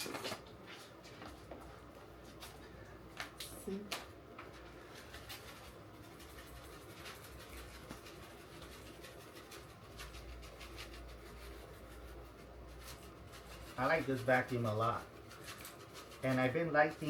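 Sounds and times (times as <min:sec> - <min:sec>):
faint rubbing and scratching: 0:04.6 - 0:17.0.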